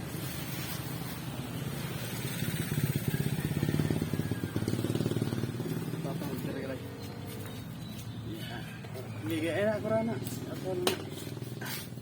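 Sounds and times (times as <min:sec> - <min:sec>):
small motorcycle engine running: 0:01.5 - 0:07.6.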